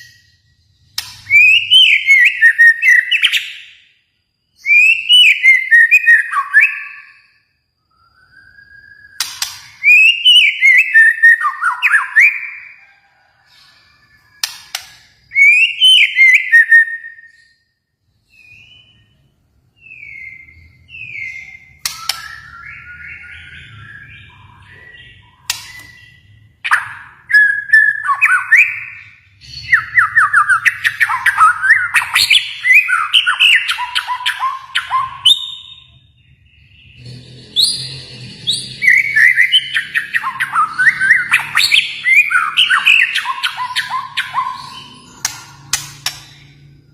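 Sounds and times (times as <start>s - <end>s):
bird singing whistled phrases: 1.0s - 3.8s, 4.6s - 12.8s, 14.3s - 17.7s, 19.8s - 36.0s, 38.6s - 45.3s.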